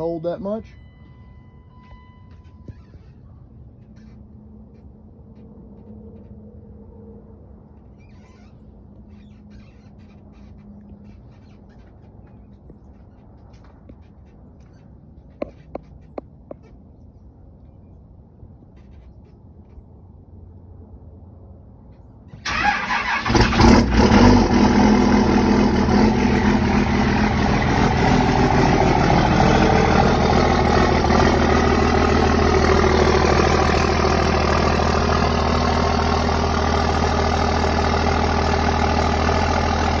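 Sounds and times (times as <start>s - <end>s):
diesel engine cranking: 22.4s - 40.0s
diesel engine idling loudly: 22.4s - 40.0s.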